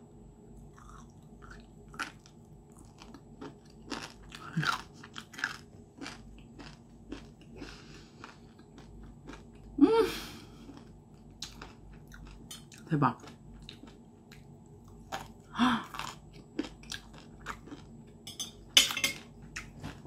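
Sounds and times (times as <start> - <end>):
crunchy chewing: 0.7 - 9.8, 10.5 - 20.0
person humming mmm: 9.8 - 10.6.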